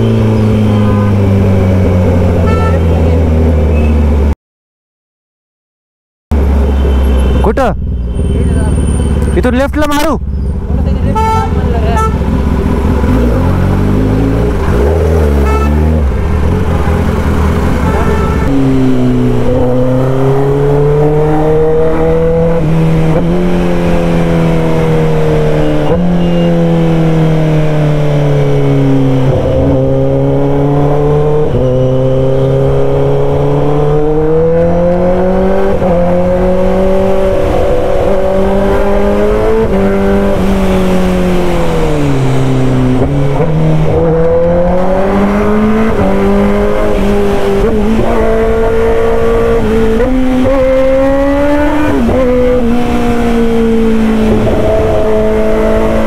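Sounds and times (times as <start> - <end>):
motorcycle engine running loud: 10.2 - 30.4.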